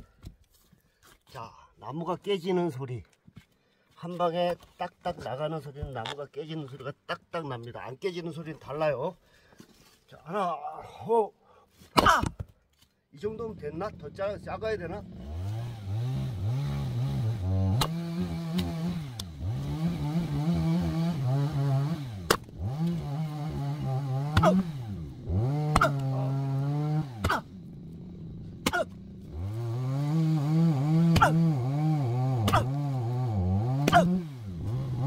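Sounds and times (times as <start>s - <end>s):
small engine running: 13.4s - 35.0s
firewood splitting cracks: 17.6s - 19.8s, 20.9s - 34.8s.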